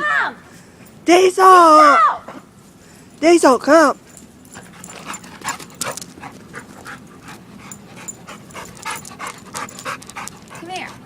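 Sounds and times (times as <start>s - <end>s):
dog panting: 4.1s - 11.0s.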